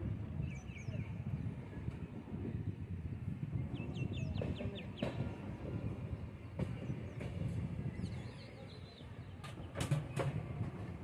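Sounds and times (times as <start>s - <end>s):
moving train rumble: 0.0s - 11.0s
sharp train clacks: 4.2s - 8.6s, 9.3s - 11.0s.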